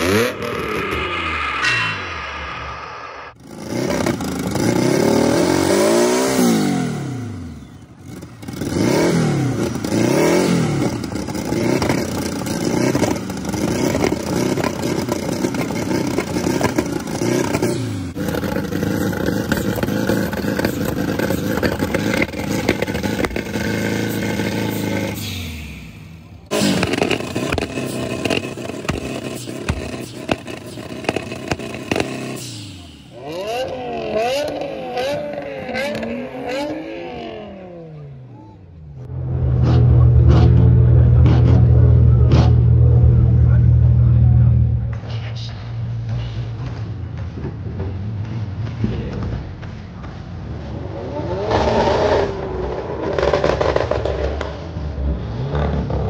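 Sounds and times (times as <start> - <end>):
car engine revving hard: 0.0 - 1.6, 3.4 - 7.5, 8.1 - 25.8, 26.5 - 38.0, 50.9 - 56.0
car engine running steadily: 7.0 - 33.7, 38.0 - 50.7.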